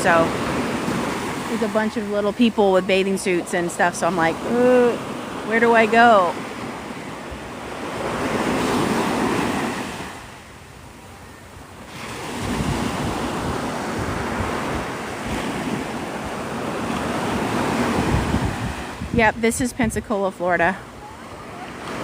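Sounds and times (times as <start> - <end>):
surf washing onto sandy beach: 0.0 - 10.5, 11.8 - 22.0
wind buffeting microphone: 11.6 - 22.0.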